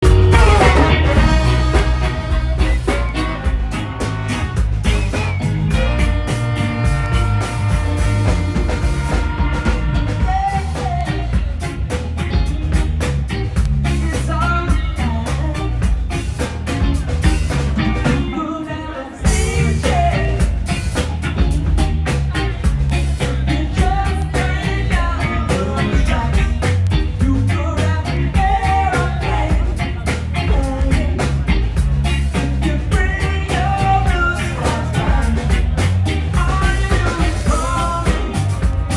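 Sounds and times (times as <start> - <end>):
person singing: 0.0 - 11.6, 18.0 - 21.0, 23.2 - 38.9
live band playing: 0.0 - 38.9.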